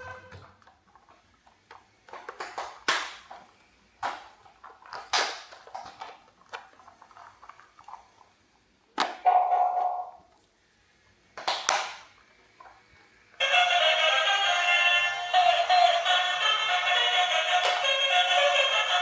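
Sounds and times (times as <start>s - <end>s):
toys clicking and rustling: 0.4s - 8.4s, 16.0s - 19.0s.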